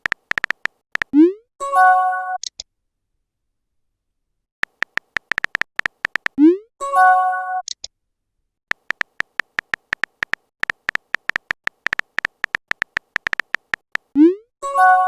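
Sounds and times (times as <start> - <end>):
keyboard tap clicks: 0.0 - 1.1, 4.6 - 6.4, 8.7 - 14.1.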